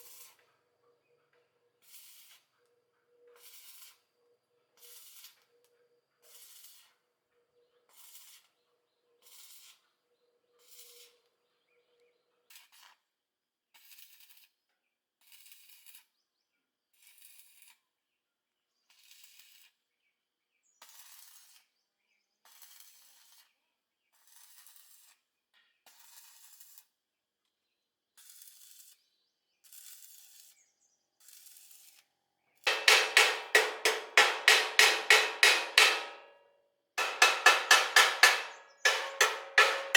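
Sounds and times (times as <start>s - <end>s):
hammer blows on metal: 32.7s - 36.4s, 37.0s - 39.9s
hand tool scraping metal: 32.7s - 36.4s, 37.0s - 39.9s.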